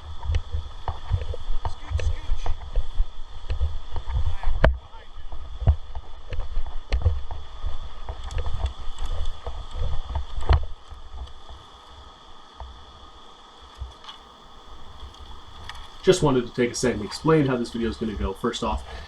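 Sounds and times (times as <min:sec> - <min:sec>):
wind rumble on microphone: 0:00.0 - 0:11.7
water hissing: 0:14.3 - 0:19.0.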